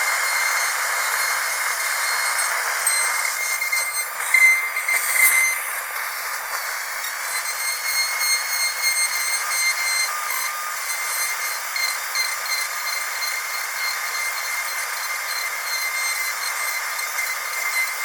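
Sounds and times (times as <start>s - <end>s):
dental drill whining: 0.0s - 18.0s.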